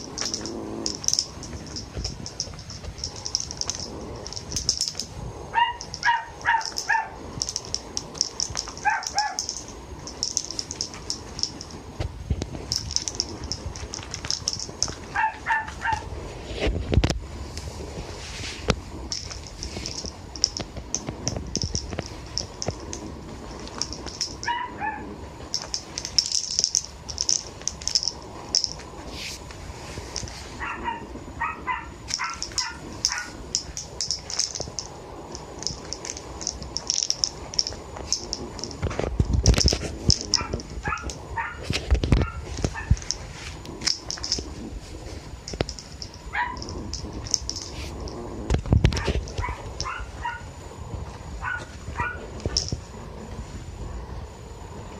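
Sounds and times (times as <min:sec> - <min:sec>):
high rattling: 0:00.0 - 0:16.2, 0:18.8 - 0:50.5, 0:51.4 - 0:53.0
dog whining and yipping: 0:05.5 - 0:07.2, 0:15.1 - 0:16.1, 0:24.4 - 0:25.0.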